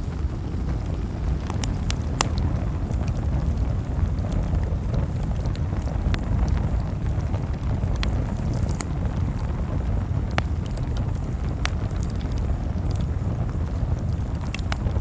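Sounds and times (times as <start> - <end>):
campfire flames rumbling: 0.0 - 15.0
wood crackling pops: 0.0 - 15.0.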